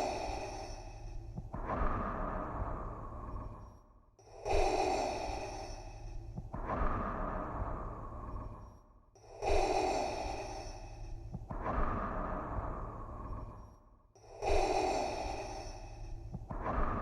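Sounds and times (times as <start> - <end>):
hissing mechanical breathing: 9.3 - 12.0, 12.6 - 17.0.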